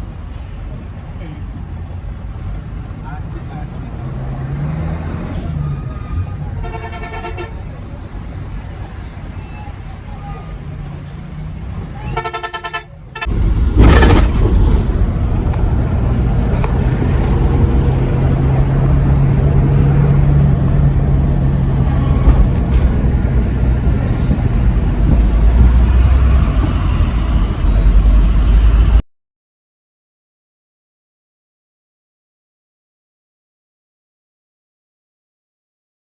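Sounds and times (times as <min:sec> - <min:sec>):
truck engine rumble: 0:00.0 - 0:29.0
rush of noise: 0:13.3 - 0:29.0.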